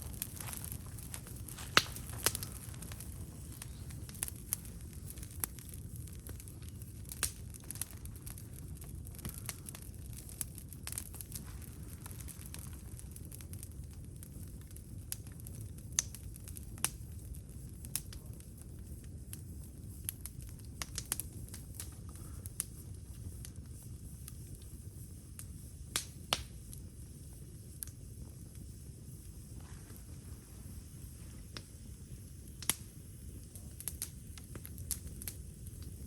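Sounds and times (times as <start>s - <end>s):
low rumble: 0.0s - 6.8s
campfire crackling and popping: 0.0s - 36.0s.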